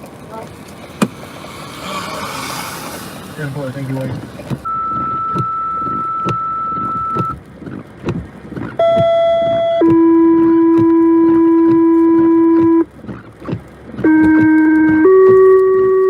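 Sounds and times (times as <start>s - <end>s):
two-tone paging tones over radio: 4.6s - 7.4s, 8.8s - 12.8s, 14.1s - 16.0s.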